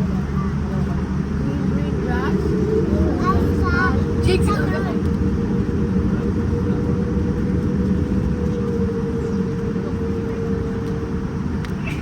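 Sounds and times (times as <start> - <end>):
airliner cabin low rumble: 0.0 - 12.0
mid-pitched hum: 0.0 - 12.0.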